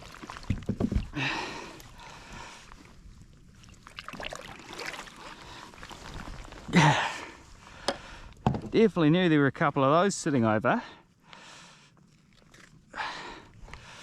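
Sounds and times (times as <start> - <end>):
knocks and splashes: 0.0 - 1.2, 3.6 - 6.7
water trickling and sloshing: 0.0 - 8.5, 11.2 - 14.0.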